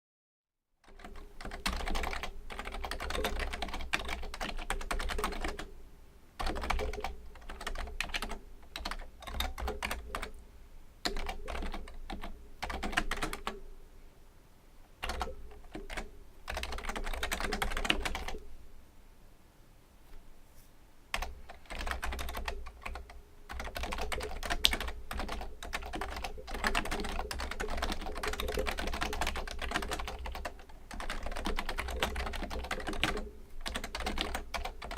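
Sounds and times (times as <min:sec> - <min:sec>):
keyboard typing: 0:00.8 - 0:05.7, 0:06.4 - 0:10.4, 0:11.0 - 0:13.6, 0:15.0 - 0:18.4, 0:21.1 - 0:34.9.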